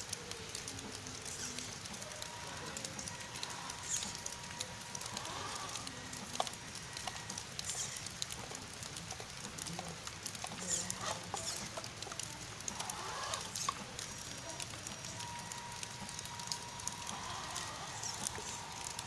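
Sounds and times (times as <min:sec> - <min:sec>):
drip clicks: 0:00.0 - 0:19.0
rain pattering: 0:00.0 - 0:19.0
faint steady tone: 0:12.0 - 0:19.0.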